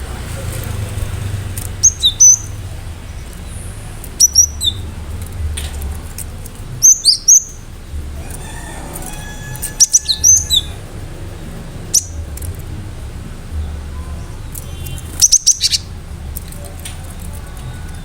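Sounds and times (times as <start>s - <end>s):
bird singing sharp high notes: 6.8s - 12.3s, 14.0s - 16.0s.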